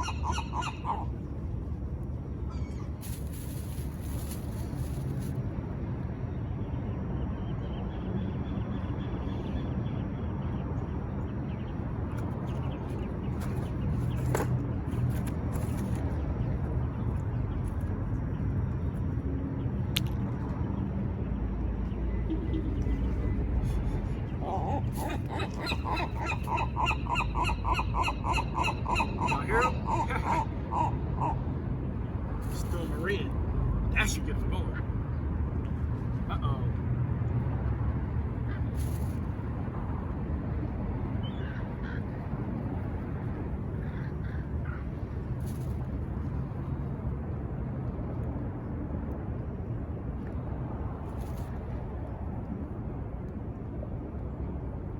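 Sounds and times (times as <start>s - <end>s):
gull yelping calls: 0.0s - 1.1s, 24.4s - 31.5s
seagulls cawing: 0.0s - 1.2s, 24.3s - 31.5s
low rumble of wind or traffic: 0.0s - 54.9s.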